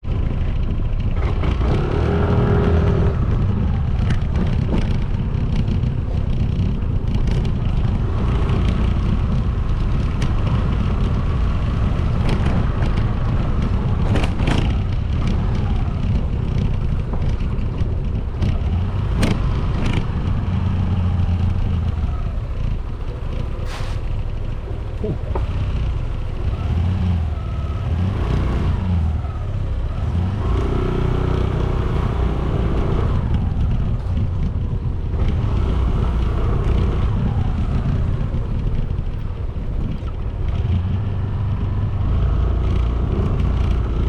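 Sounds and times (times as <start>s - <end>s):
motorcycle engine and road rumble: 0.0s - 44.0s
sharp clicks or knocks: 18.4s - 20.1s.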